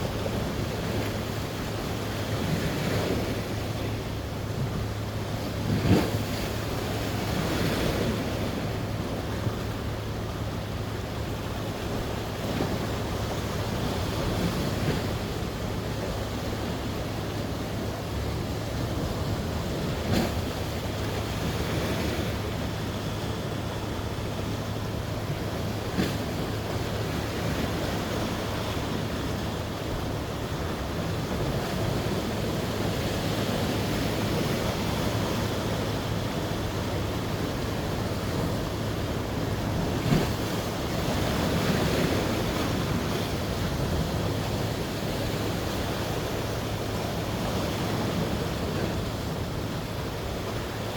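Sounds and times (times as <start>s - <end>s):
sea waves washing on shore: 0.0s - 50.9s.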